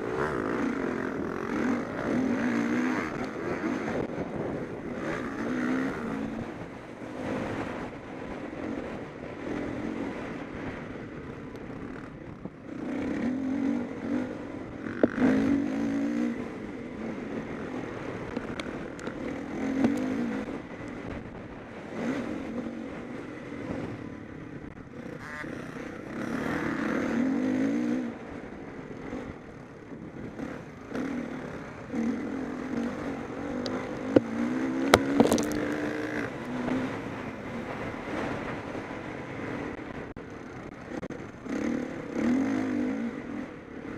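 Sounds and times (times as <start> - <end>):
motocross bike engines revving: 0.0 - 10.8, 11.7 - 43.9.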